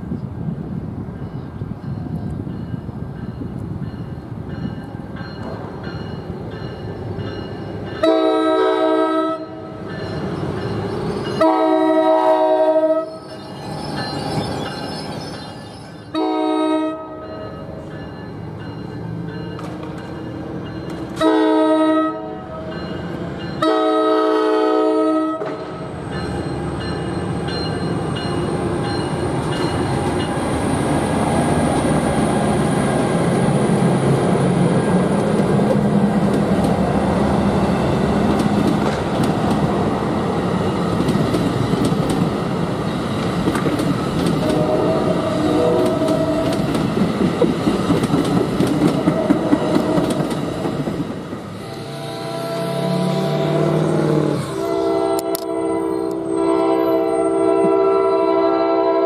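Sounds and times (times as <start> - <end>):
train rumbling past: 0.0 - 59.0
locomotive horn blasts: 8.0 - 9.8, 11.4 - 13.2, 16.1 - 17.7, 21.2 - 22.7, 23.6 - 25.6, 44.4 - 46.5, 49.0 - 50.2, 51.6 - 59.0
wheels clicking over rail joints: 45.8 - 51.4.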